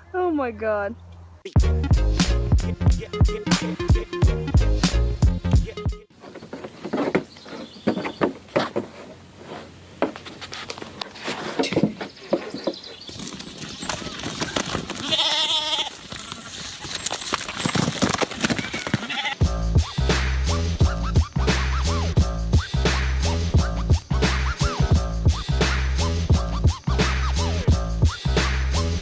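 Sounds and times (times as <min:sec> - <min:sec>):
goat-like bleat: 0:15.0 - 0:16.6, 0:18.6 - 0:19.4.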